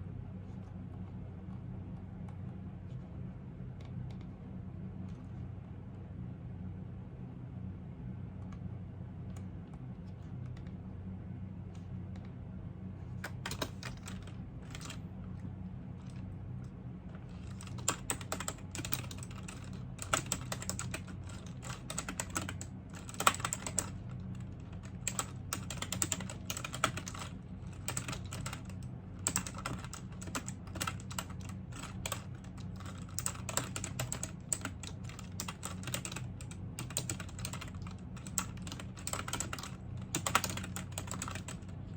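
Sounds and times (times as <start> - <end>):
low steady hum: 0.0 - 41.9
typing on keyboard: 13.2 - 15.0, 17.3 - 41.8.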